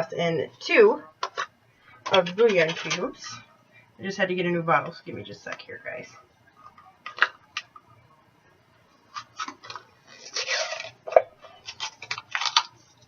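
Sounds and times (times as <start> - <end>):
plastic rustle: 9.0 - 13.0.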